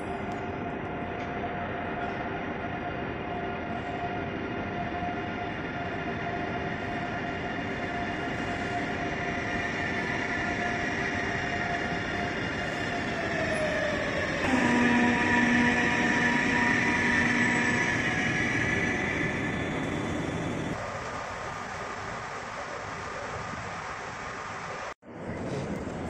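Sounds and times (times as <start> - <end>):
electric train traction whine: 0.0 - 22.0
train running gear rumble: 3.6 - 21.2.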